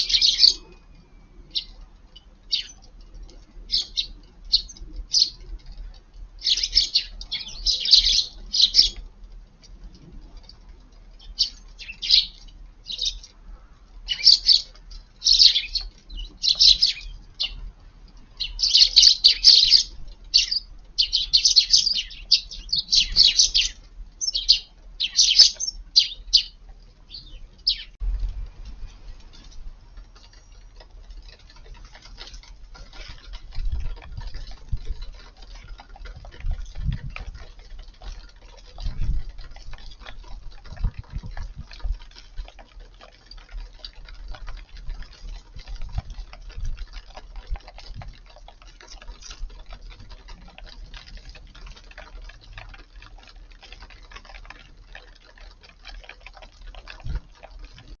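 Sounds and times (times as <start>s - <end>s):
birds ticking and clicking: 0.0s - 58.0s
wind on microphone: 32.6s - 42.2s.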